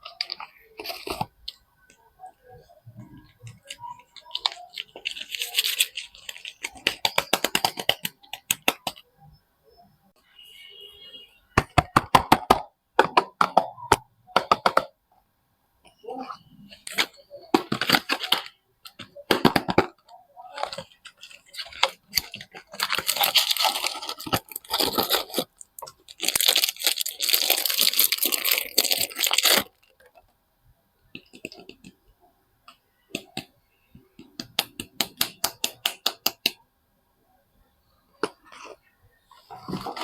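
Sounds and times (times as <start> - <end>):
packaging tearing and crinkling: 4.2 - 7.9, 20.5 - 29.8.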